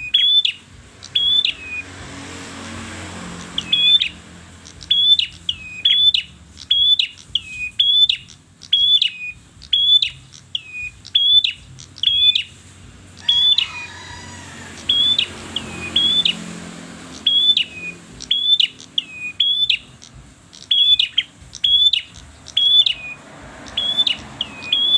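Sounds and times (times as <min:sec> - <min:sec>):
songbird high chirps: 0:00.0 - 0:02.1, 0:03.0 - 0:24.9.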